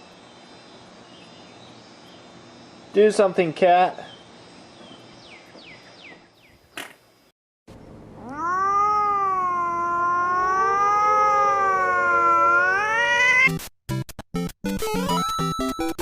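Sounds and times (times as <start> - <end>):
cat yowling: 8.2 - 13.5.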